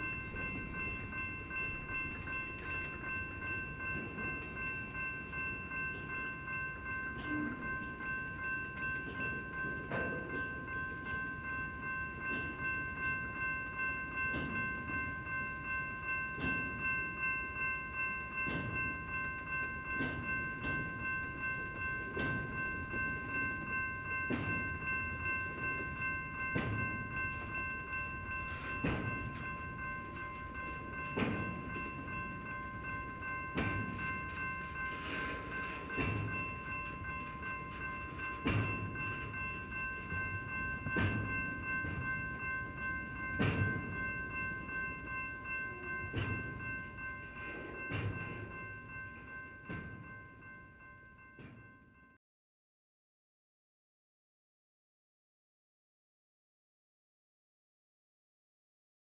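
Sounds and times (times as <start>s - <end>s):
train wheels clacking over rail joint: 18.3s - 45.1s, 45.8s - 50.1s.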